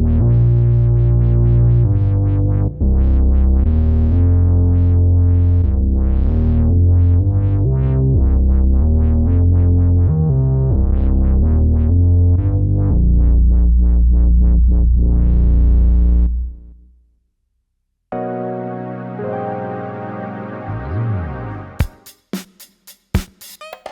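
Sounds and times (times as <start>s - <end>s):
held synth bass: 0.0s - 16.9s, 18.1s - 21.9s
plucked synth notes: 18.1s - 21.8s.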